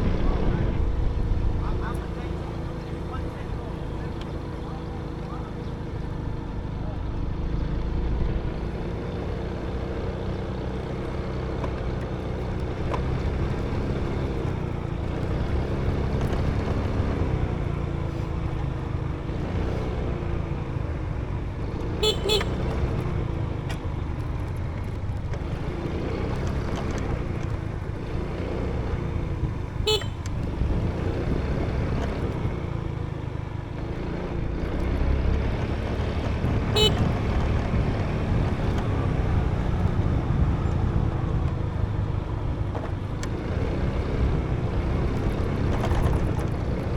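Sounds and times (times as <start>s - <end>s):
motorbike engine revving: 0.0s - 46.9s
short horn toot: 22.0s - 22.8s, 29.8s - 30.3s, 36.7s - 37.2s.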